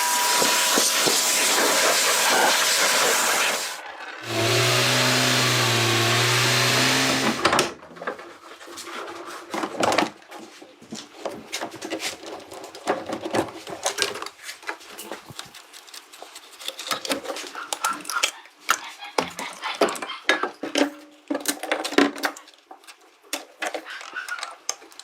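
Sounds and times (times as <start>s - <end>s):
machine humming and hissing: 0.0s - 7.7s.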